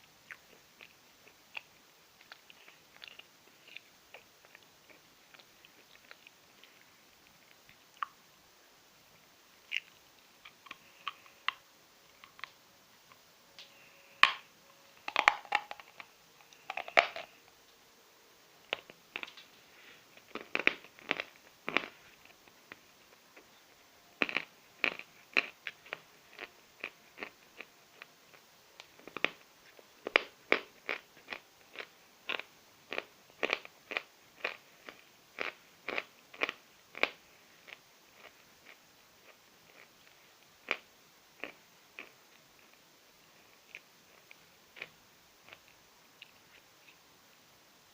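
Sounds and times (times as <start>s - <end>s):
chalk being chewed: 0.2s - 8.2s, 9.7s - 12.6s, 18.7s - 23.2s, 24.2s - 40.8s, 43.6s - 47.0s.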